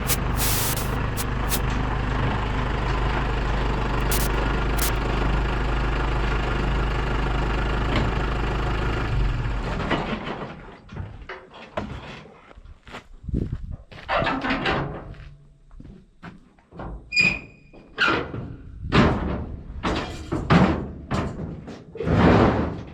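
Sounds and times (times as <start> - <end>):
sharp clicks: 0.0 - 1.6, 4.0 - 5.0
engine idling: 0.0 - 8.7.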